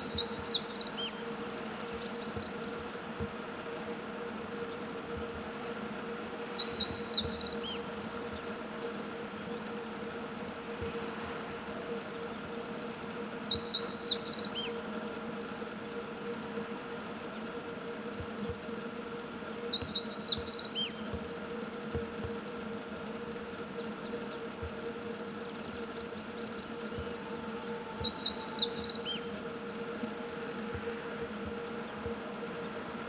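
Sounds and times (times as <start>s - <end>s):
bunting twittering song: 0.0s - 3.4s, 6.5s - 9.7s, 12.3s - 15.0s, 19.6s - 33.0s
low background hum: 0.0s - 33.0s.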